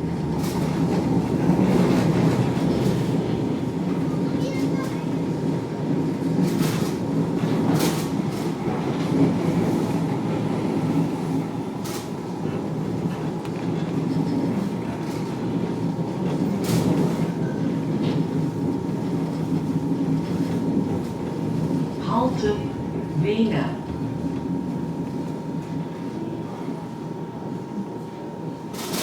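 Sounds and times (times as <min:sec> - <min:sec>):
tram wheels rumbling: 0:00.0 - 0:29.0.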